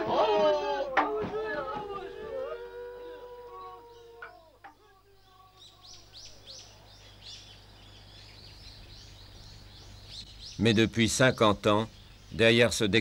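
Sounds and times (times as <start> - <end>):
bird chirping: 2.6 - 13.0.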